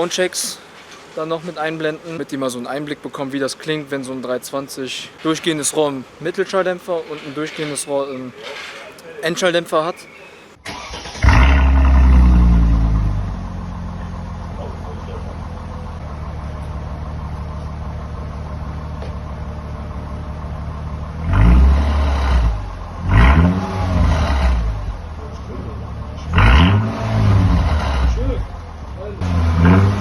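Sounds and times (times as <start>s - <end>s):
car engine idling and revving: 10.8s - 30.0s.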